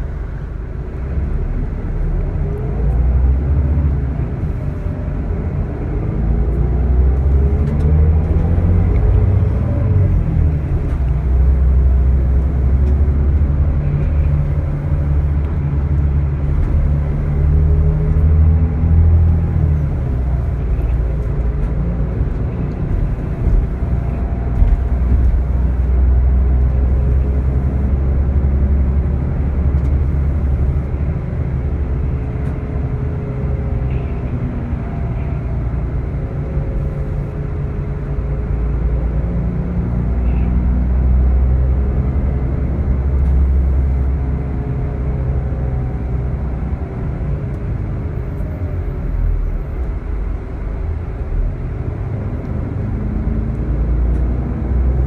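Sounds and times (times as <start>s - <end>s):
bus engine rumbling: 0.0s - 55.0s.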